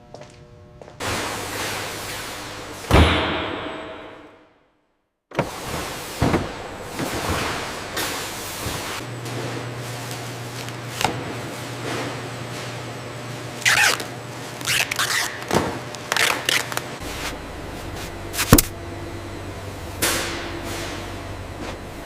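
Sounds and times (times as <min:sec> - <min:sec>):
sharp knock: 0:02.9 - 0:04.5
low hum: 0:17.0 - 0:22.0.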